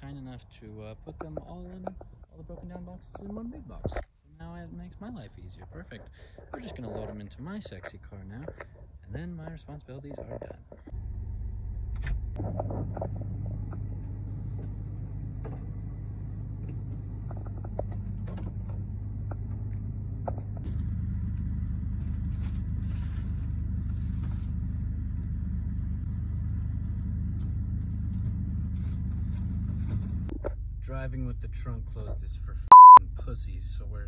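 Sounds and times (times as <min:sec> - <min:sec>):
car engine rumbling: 0:00.0 - 0:34.0.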